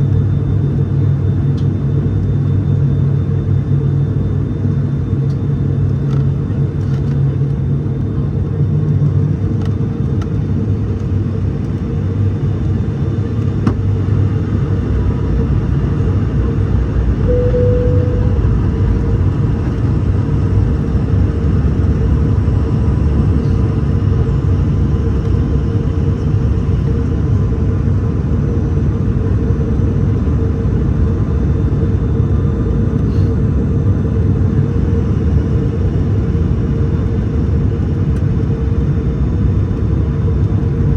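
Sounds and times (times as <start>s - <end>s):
propeller aircraft cabin drone: 0.0s - 40.9s.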